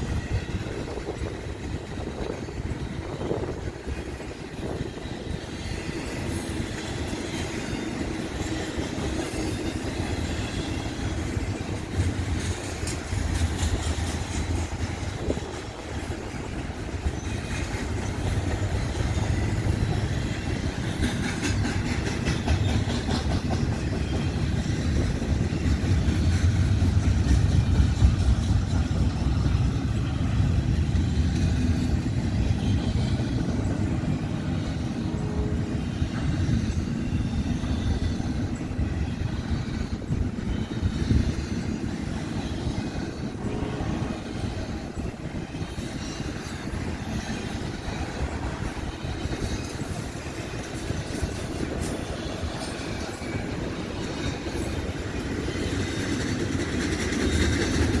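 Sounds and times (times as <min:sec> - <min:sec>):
deep train rumble: 0:00.0 - 0:58.0
train wheels clattering over rail joints: 0:00.0 - 0:58.0.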